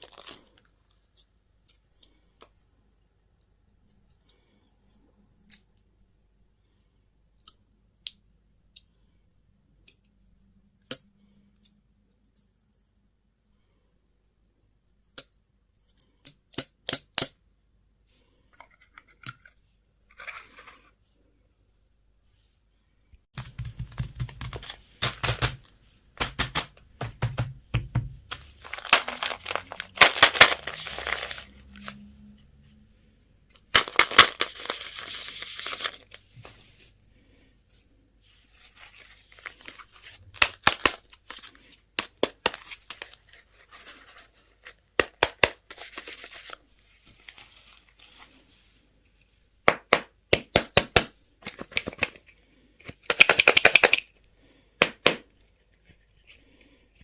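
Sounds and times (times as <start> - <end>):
packaging torn and crinkled: 0.0 - 0.7, 28.4 - 32.0, 33.7 - 36.2, 38.9 - 43.2.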